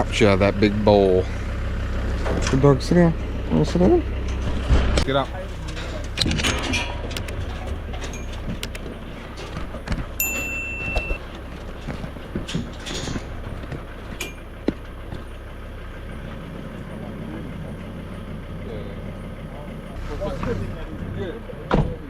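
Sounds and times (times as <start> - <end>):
vehicle engine running: 0.0 - 22.0
knocks and clinks: 5.7 - 14.5
short high tone: 10.2 - 11.2.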